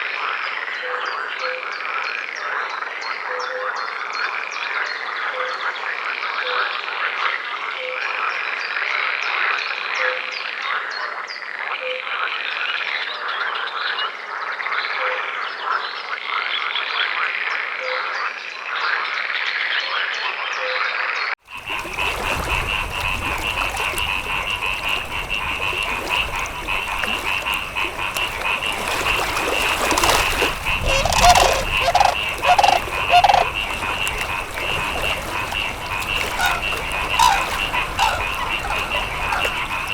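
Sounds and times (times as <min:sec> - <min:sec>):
frogs calling: 0:21.5 - 0:39.9
low frog croaks: 0:21.5 - 0:39.9.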